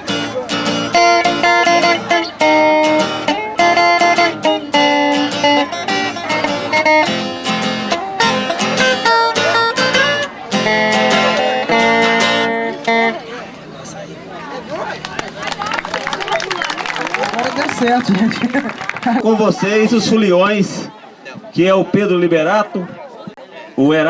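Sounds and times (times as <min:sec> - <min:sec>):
acoustic guitar picking and strumming: 0:00.0 - 0:19.2.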